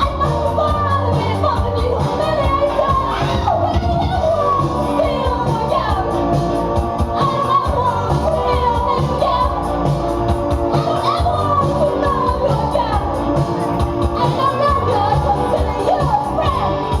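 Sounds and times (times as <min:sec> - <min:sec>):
live band playing: 0:00.0 - 0:17.0
person singing: 0:10.7 - 0:17.0.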